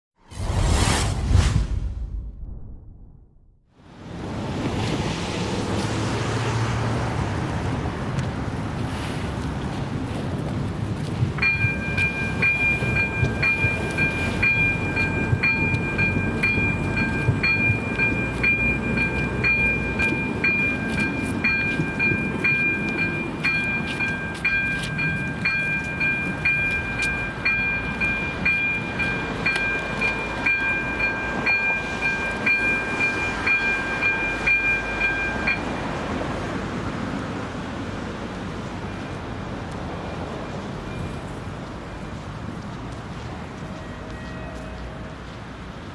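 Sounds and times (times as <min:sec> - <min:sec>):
train passing with low rumble: 0:00.2 - 0:45.9
level crossing warning bell: 0:11.4 - 0:36.6.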